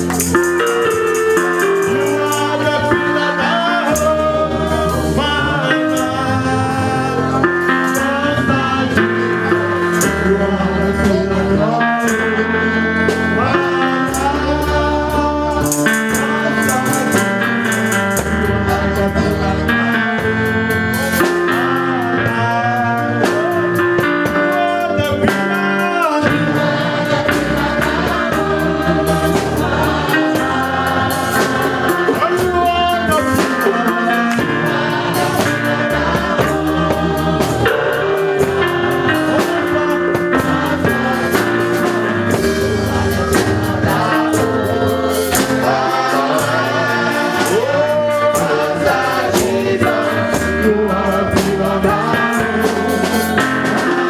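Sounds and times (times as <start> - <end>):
drum beat: 0.0 - 8.3, 23.3 - 54.0
live gospel band music: 0.0 - 54.0
people singing: 0.0 - 54.0.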